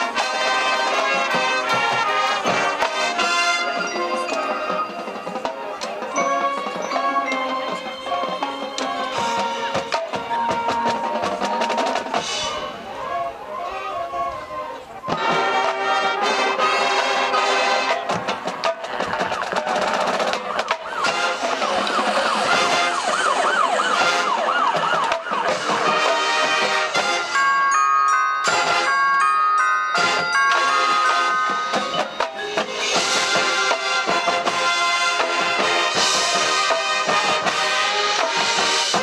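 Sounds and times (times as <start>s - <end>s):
marching band playing: 0.0s - 39.0s
wavering siren-like tones: 18.9s - 33.4s.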